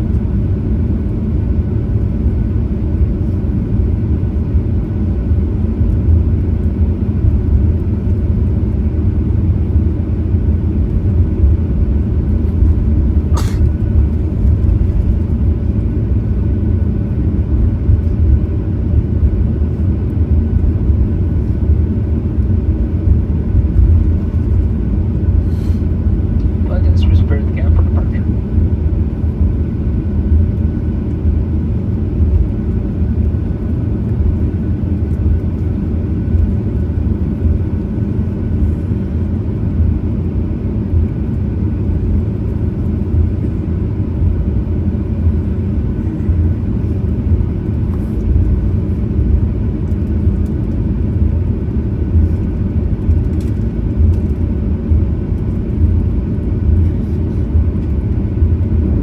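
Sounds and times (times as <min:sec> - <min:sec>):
low jet engine rumble: 0:00.0 - 0:59.0
faint steady whine: 0:21.4 - 0:39.7.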